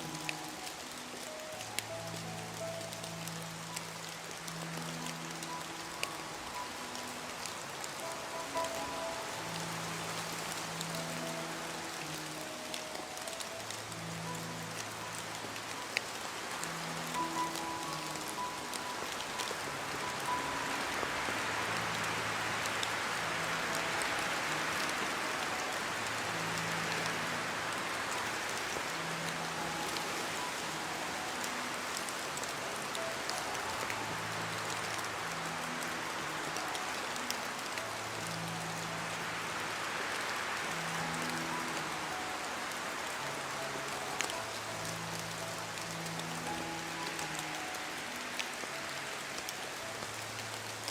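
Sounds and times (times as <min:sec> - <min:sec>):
soft music of low notes: 0:00.0 - 0:50.9
steady rain falling: 0:00.0 - 0:50.9.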